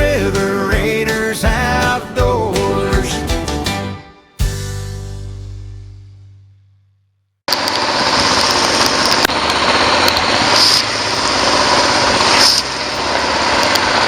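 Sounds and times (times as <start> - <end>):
heavy rain hiss: 8.6 - 14.0.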